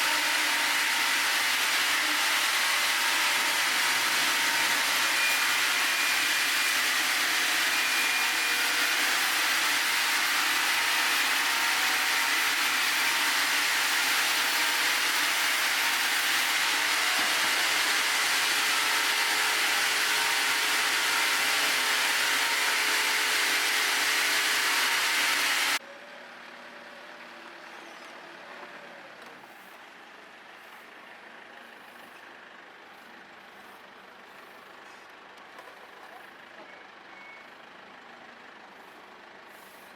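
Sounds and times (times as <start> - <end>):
sawmill cutting log: 0.0 - 25.8.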